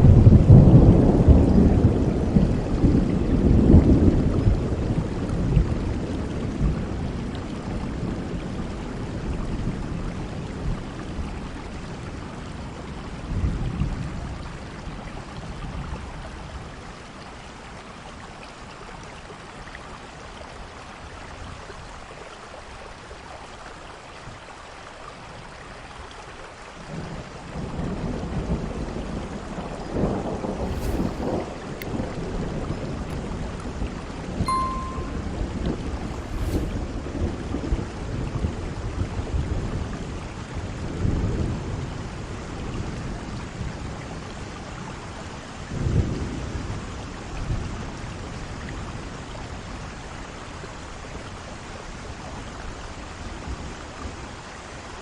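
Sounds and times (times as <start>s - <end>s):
rolling thunder: 0.0s - 9.8s, 26.9s - 34.1s
steady rain: 0.0s - 55.0s.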